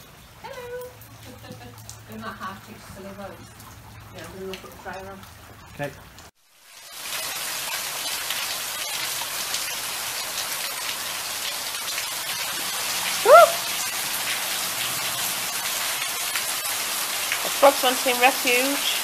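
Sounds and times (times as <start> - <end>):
heavy rain: 0.0 - 19.0
water pouring off roof: 0.0 - 19.0
rising call: 13.2 - 13.7.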